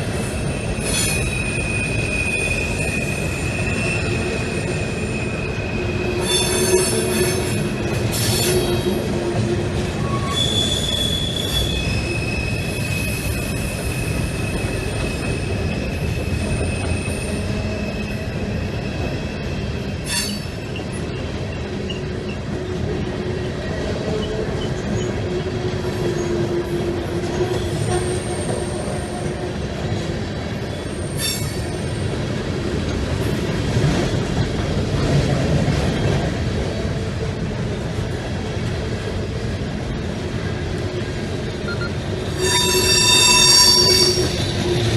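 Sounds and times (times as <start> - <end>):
freight train rumbling past: 0.0 - 44.9
wheel flange squeals: 0.4 - 8.9, 10.0 - 18.9, 41.7 - 44.9.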